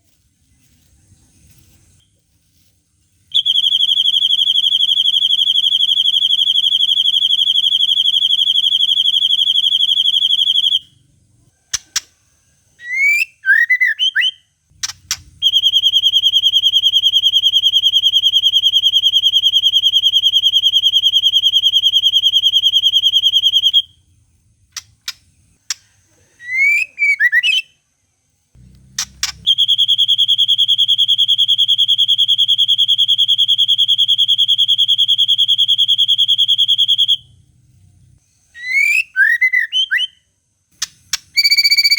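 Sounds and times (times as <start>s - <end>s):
bird clicks and chirps: 14.8s - 15.3s, 24.7s - 25.9s, 40.8s - 41.9s.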